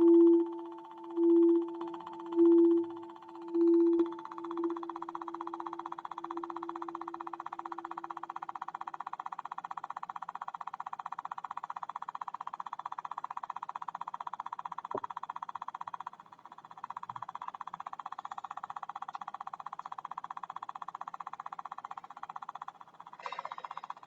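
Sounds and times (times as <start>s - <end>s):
lower ringing tone: 0.0s - 9.0s
pulsing tone: 0.0s - 9.6s, 23.2s - 24.0s.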